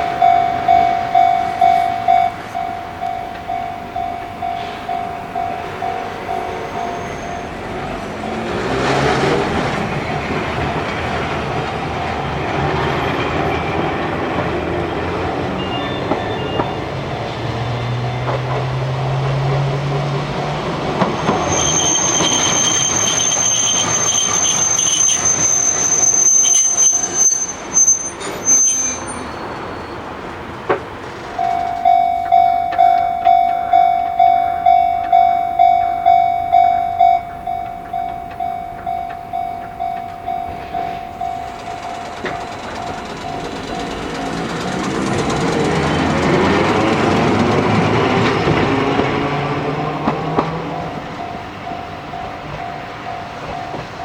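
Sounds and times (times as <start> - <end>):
train wheels squealing: 0.0 - 19.4, 20.8 - 30.5, 31.3 - 54.0
level crossing warning bell: 0.0 - 30.1, 31.2 - 54.0
train rolling past: 0.0 - 54.0.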